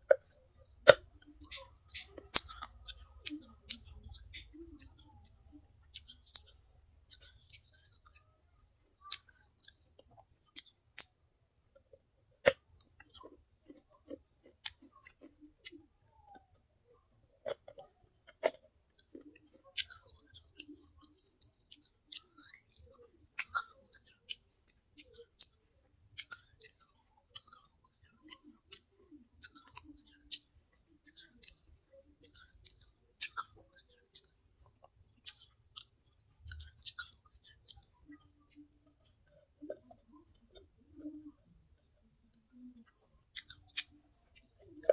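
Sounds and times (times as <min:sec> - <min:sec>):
wet mouth sounds: 0:00.0 - 0:08.3, 0:17.4 - 0:25.5, 0:26.2 - 0:44.9
chewing crunchy clay: 0:00.0 - 0:44.9.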